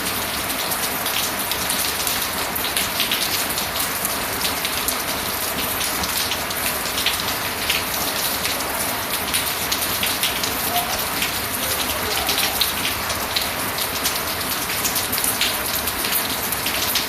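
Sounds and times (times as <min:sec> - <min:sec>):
rain hiss: 0:00.0 - 0:17.0
raindrops pattering: 0:00.0 - 0:17.0.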